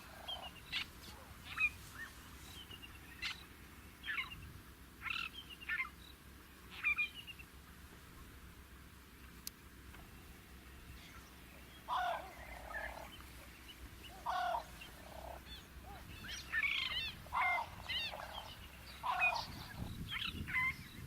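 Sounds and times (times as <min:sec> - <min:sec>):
bird calling harsh notes: 0:11.0 - 0:21.0.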